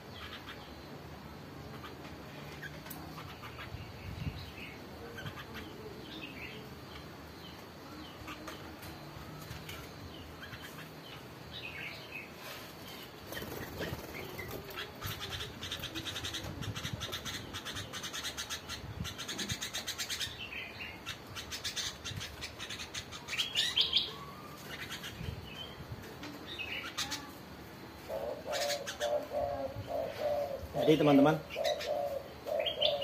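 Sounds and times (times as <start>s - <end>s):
caged birds chirping: 0.0s - 33.0s
dove cooing: 28.0s - 33.0s.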